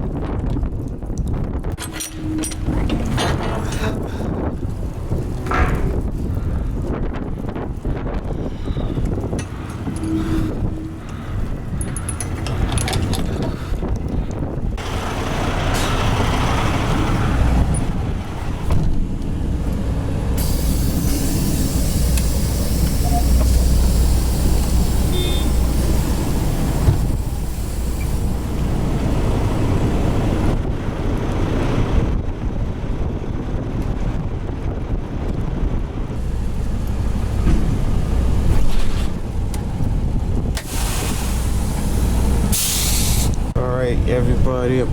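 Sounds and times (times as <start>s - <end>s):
wind on microphone: 0.0s - 14.8s, 15.5s - 44.9s
truck engine rumble: 0.0s - 44.9s
air brakes hissing: 8.4s - 12.4s, 15.6s - 18.0s, 20.3s - 30.5s, 40.6s - 43.6s.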